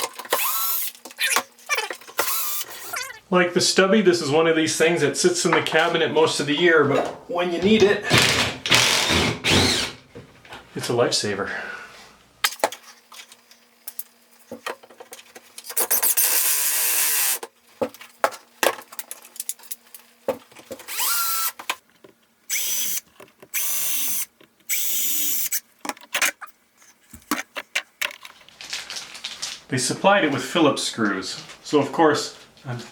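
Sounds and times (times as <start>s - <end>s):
cordless drill running: 0.0s - 1.3s, 2.2s - 3.0s, 8.2s - 10.0s, 16.0s - 17.4s, 20.9s - 21.6s, 22.5s - 25.6s.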